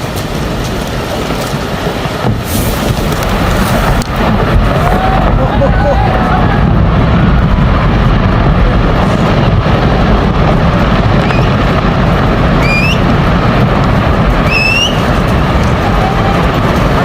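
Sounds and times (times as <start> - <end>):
loud rumbling roar: 2.6 - 17.0
short rising whistles: 12.6 - 13.0, 14.4 - 15.0.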